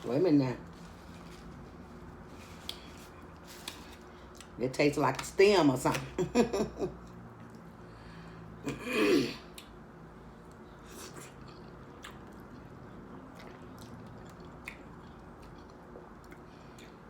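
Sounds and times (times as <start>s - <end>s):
person chewing: 10.4s - 17.0s.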